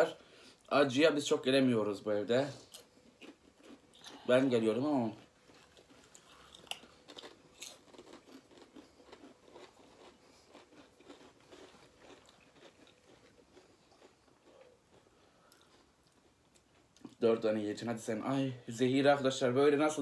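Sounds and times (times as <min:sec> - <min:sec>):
crunching and chewing crisps: 0:02.6 - 0:17.2.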